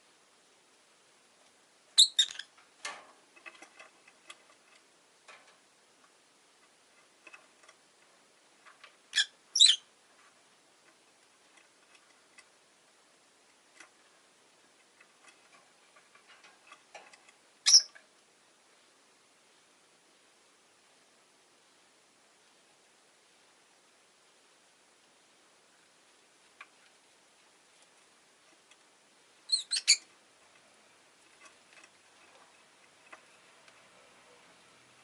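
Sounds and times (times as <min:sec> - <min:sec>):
bird shrill chirps: 0:02.0 - 0:02.4, 0:17.7 - 0:17.9, 0:29.5 - 0:30.0.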